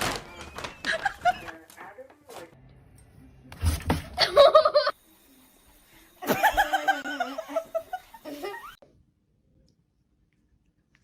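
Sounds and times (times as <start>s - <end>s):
person laughing: 0.8s - 1.5s, 4.2s - 4.9s, 6.2s - 8.8s.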